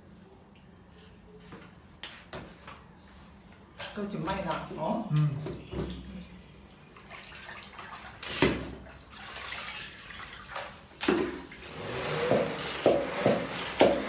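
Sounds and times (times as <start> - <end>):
water sloshing in a bucket: 5.3 - 11.7.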